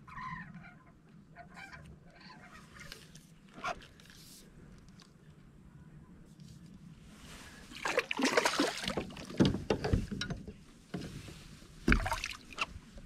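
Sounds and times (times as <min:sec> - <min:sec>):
knocks and rustling in kayak: 0:08.7 - 0:13.0.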